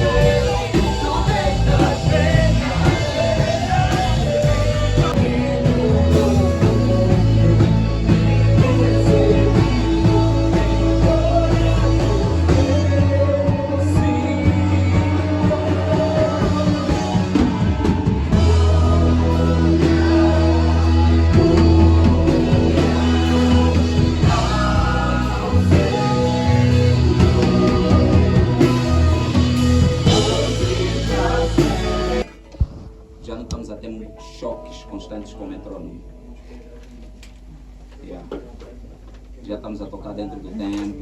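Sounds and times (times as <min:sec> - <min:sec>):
band playing: 0:00.0 - 0:32.5
person singing: 0:00.0 - 0:32.5.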